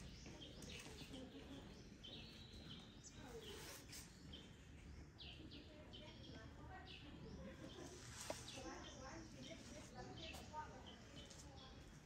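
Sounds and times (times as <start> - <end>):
faint bird chirps and whistles: 2.0 - 4.5.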